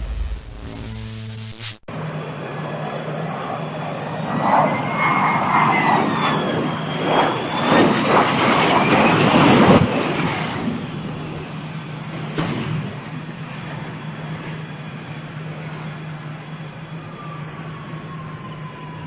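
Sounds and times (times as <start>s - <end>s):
engine whine sliding in pitch: 0.0s - 2.7s
jet engines rushing: 0.0s - 12.9s.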